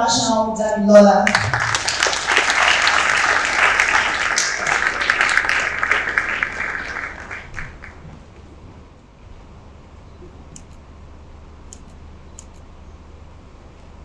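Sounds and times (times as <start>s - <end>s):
audience applauding: 1.2s - 8.2s.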